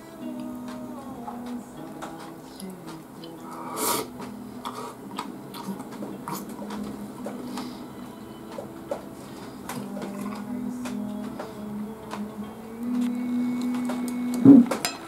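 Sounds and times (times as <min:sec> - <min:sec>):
person chewing: 0:01.2 - 0:11.1
loud breathy noise: 0:03.4 - 0:05.0, 0:07.4 - 0:08.0.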